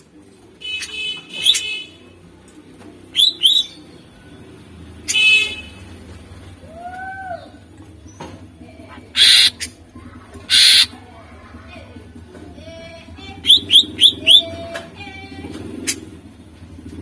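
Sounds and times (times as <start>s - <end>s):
bird singing harsh phrases: 3.1s - 4.1s, 8.9s - 9.8s, 10.4s - 11.0s, 13.4s - 14.6s
quick sharp bird chirps: 9.2s - 9.7s, 10.5s - 10.9s.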